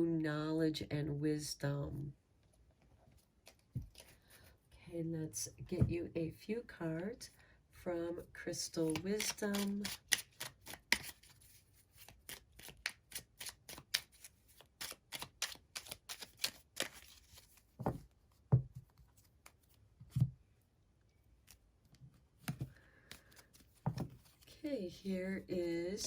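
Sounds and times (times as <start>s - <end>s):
cards being shuffled: 8.8s - 18.0s, 22.4s - 25.1s
cards thumping down: 22.4s - 24.3s.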